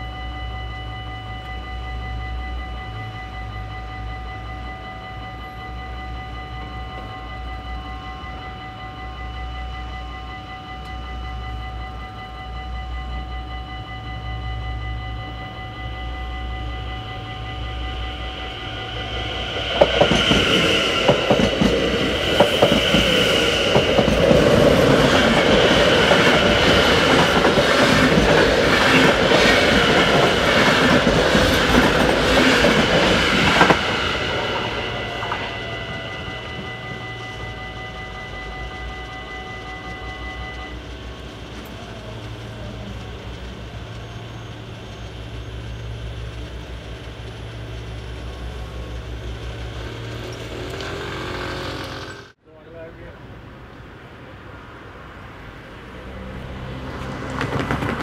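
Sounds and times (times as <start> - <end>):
level crossing bell ringing: 0.0 - 41.1
electric train passing: 0.0 - 58.0.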